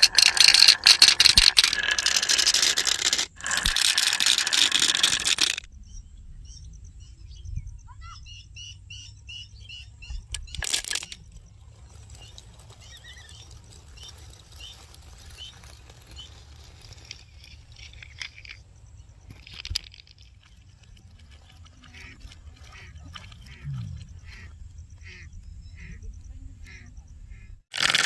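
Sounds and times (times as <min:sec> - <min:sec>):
wooden marble run clattering: 0:00.0 - 0:05.7, 0:10.3 - 0:11.2, 0:27.7 - 0:28.0.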